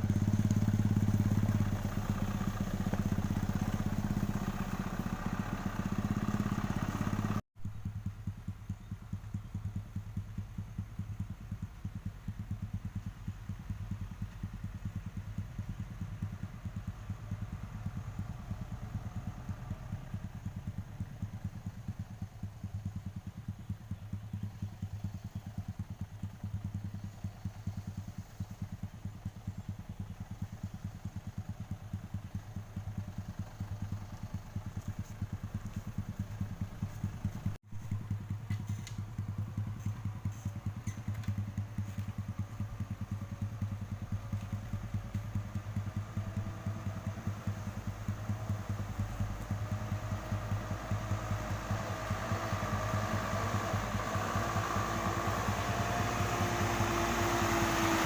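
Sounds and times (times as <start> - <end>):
truck diesel engine throbbing: 0.0 - 7.4, 27.4 - 58.0.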